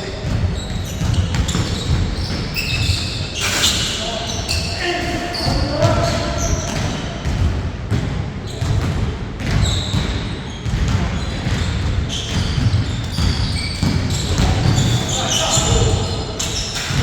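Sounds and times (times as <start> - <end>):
basketball bouncing on court floor: 0.2 - 3.2, 5.4 - 17.0.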